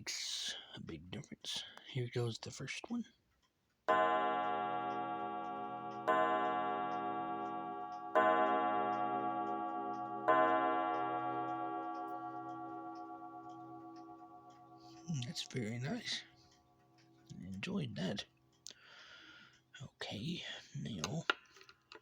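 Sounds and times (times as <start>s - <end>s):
clock gong strikes ringing: 3.9s - 16.2s.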